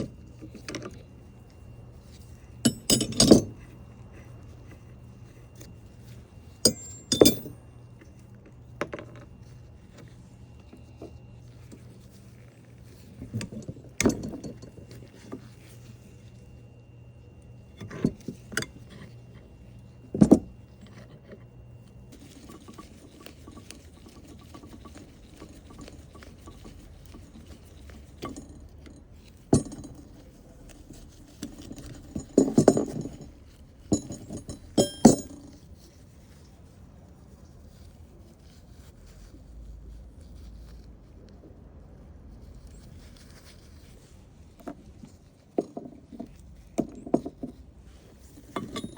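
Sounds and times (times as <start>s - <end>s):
faint steady hum: 0.0s - 48.9s
metallic clinks of hand tools: 2.7s - 3.5s, 6.6s - 7.6s, 33.9s - 35.4s.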